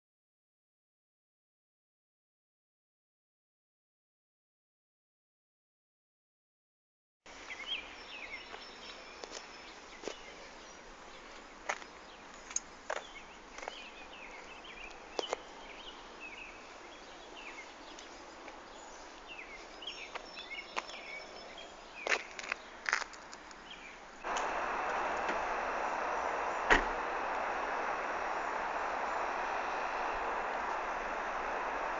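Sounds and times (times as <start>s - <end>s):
background hiss: 7.3s - 31.9s
small birds chirping: 7.3s - 31.9s.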